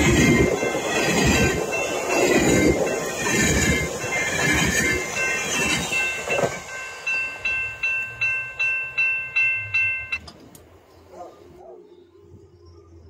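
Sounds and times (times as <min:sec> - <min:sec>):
train coaches rushing past: 0:00.0 - 0:11.6
level crossing bell dinging: 0:05.0 - 0:10.3.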